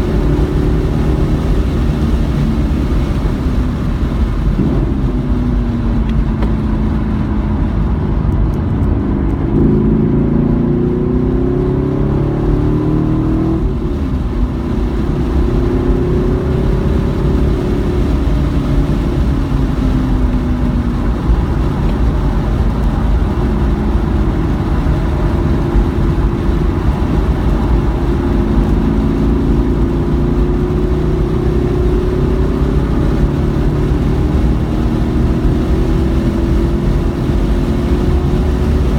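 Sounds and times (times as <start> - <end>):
race car engine accelerating: 0.0 - 38.9
road noise rumble: 0.0 - 38.9.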